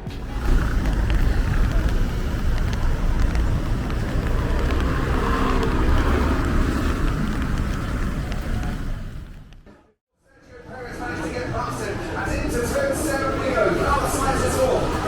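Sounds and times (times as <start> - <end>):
motor vehicles rumbling: 0.0 - 9.9, 11.0 - 15.0.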